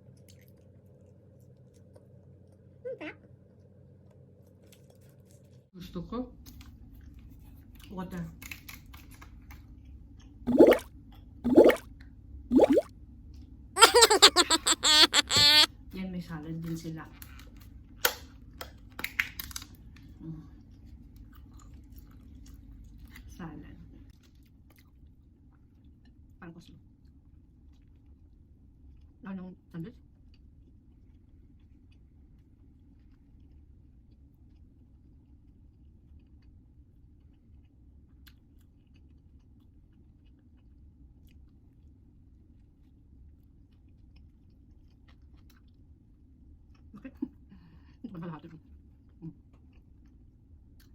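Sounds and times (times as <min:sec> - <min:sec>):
faint chewing with crunches: 0:00.0 - 0:02.6, 0:04.4 - 0:05.6, 0:19.1 - 0:23.4, 0:24.1 - 0:26.2, 0:30.1 - 0:47.5, 0:48.5 - 0:50.9.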